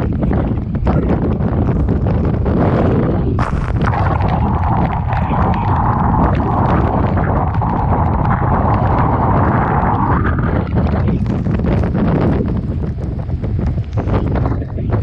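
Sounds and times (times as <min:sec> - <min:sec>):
wind buffeting microphone: 0:00.0 - 0:15.0
water rushing and hissing: 0:03.4 - 0:10.2
wave crashing: 0:03.4 - 0:11.2.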